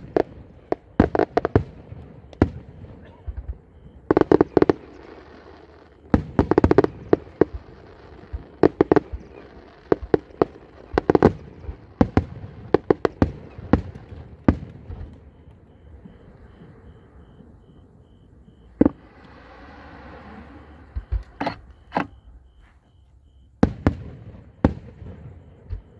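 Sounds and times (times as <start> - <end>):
fireworks shells bursting: 0.0 - 15.2.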